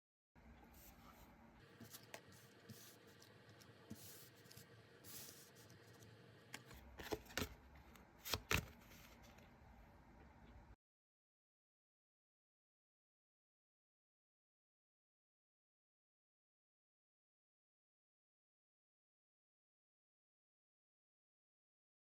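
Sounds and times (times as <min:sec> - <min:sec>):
cards sliding rustle: 0:01.8 - 0:09.4.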